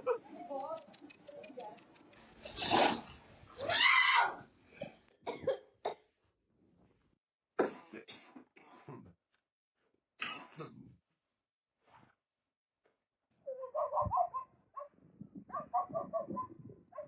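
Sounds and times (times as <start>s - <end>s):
person coughing: 5.3s - 6.0s, 7.6s - 9.1s.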